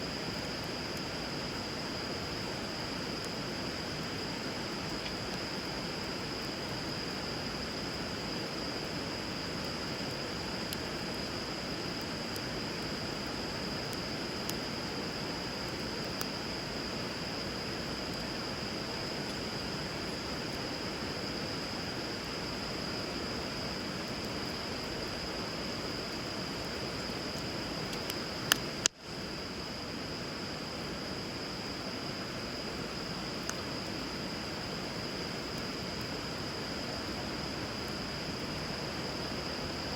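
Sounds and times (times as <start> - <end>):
wood fire crackling and popping: 2.2 - 16.5, 23.8 - 29.0.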